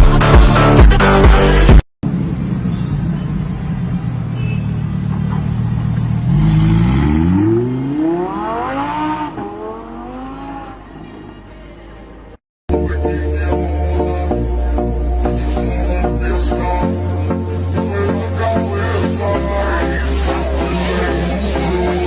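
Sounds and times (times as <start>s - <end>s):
car engine revving: 3.6s - 12.4s.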